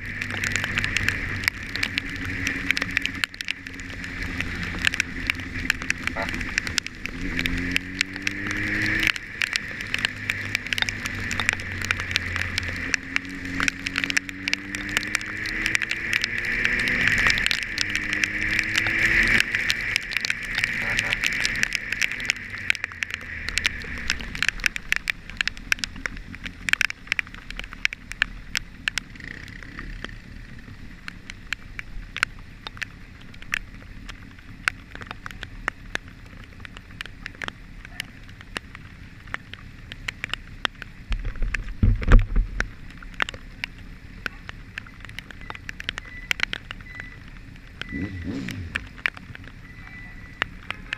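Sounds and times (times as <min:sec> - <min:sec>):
vehicle engine revving: 0:00.0 - 0:25.1, 0:47.8 - 0:49.6
raindrops ticking on camera: 0:00.0 - 0:50.9.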